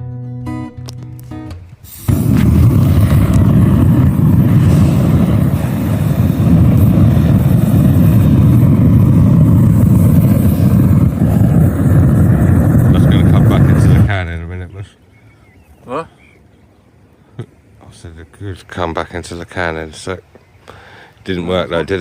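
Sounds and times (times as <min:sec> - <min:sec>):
wind buffeting microphone: 0:01.6 - 0:14.7.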